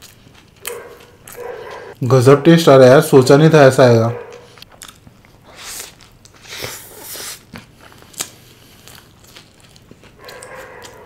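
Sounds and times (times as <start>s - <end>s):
moist chewing: 0.0s - 2.0s, 4.1s - 11.0s
biting into a burger: 4.3s - 11.0s.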